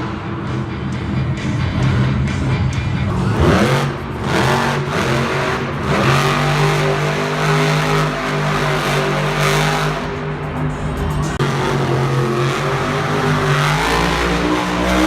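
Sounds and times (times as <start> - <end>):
truck engine revving hard: 3.1 - 15.0.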